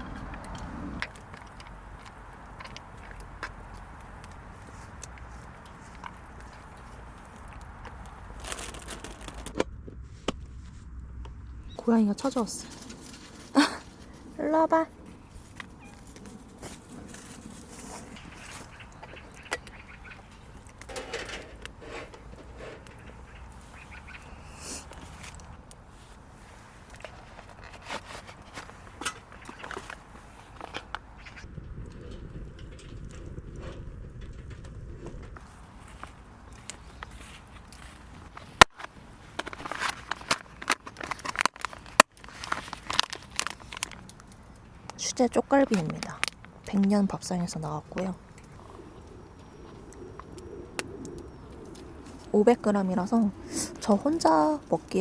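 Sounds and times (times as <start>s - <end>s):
plastic packaging crinkling: 1.1s - 9.6s, 35.4s - 45.0s.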